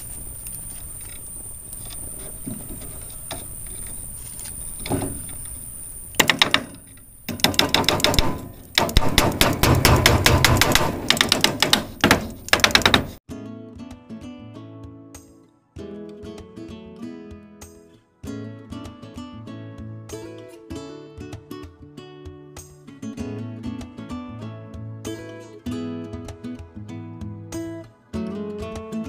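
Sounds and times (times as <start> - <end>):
high insect whine: 0.0 - 8.7
acoustic guitar music: 13.2 - 29.0.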